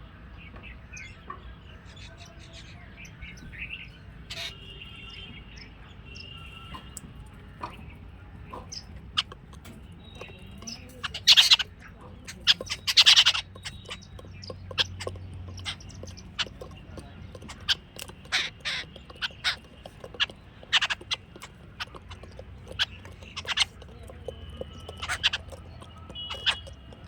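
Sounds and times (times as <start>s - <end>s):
birds chirping and squeaking: 0.5s - 27.0s
harsh bird chattering: 2.0s - 4.7s, 7.6s - 27.0s.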